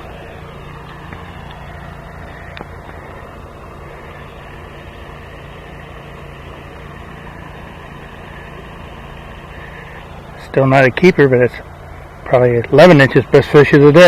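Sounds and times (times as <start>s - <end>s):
steady mechanical hum: 0.0s - 14.0s
faint clicks: 2.2s - 3.2s.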